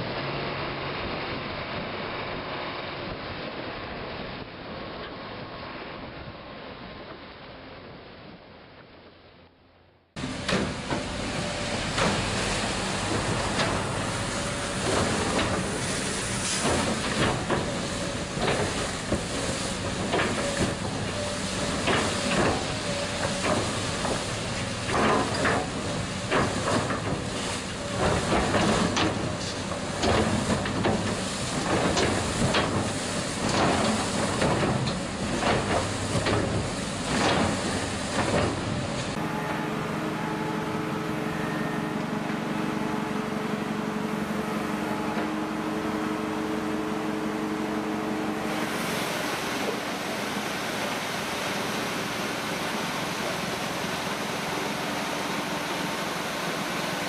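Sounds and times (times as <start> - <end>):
loud rushing hiss: 10.2 - 39.5, 46.5 - 57.0
snow removal machine engine: 10.2 - 57.0.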